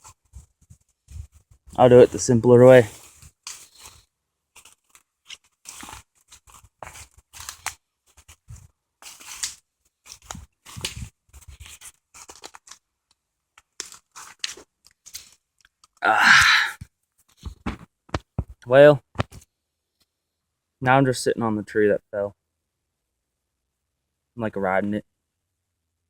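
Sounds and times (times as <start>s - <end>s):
scraping and crunching on tree trunk: 0.7s - 12.8s, 13.6s - 17.8s.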